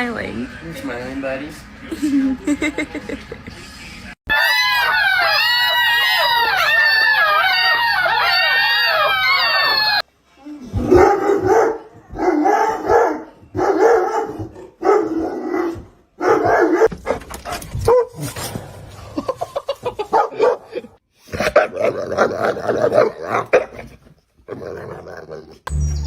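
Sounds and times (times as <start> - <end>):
dogs howling: 4.3 - 10.1, 10.8 - 16.9
dog barking: 10.8 - 18.2, 20.1 - 20.8.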